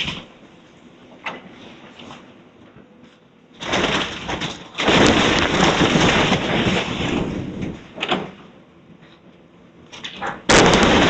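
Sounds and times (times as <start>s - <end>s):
wooden house demolition crashing: 3.5s - 8.5s, 9.9s - 11.0s.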